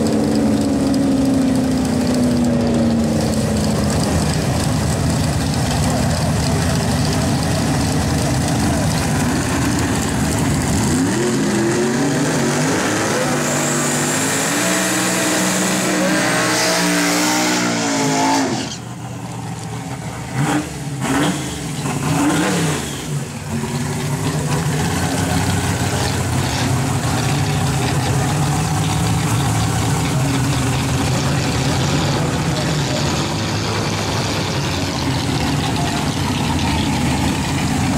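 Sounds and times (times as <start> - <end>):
engine revving: 0.0 - 19.0, 19.6 - 37.9
steady engine drone: 0.0 - 37.9
vehicle engine accelerating hard: 0.0 - 37.9.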